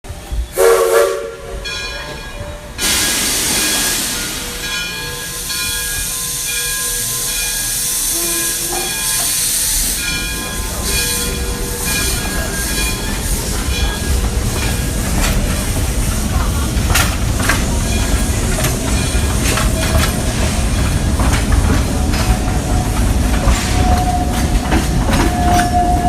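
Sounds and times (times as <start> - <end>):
train rolling with hiss: 0.1 - 26.0
train horn blast: 0.5 - 1.7, 8.1 - 9.0, 22.7 - 26.0.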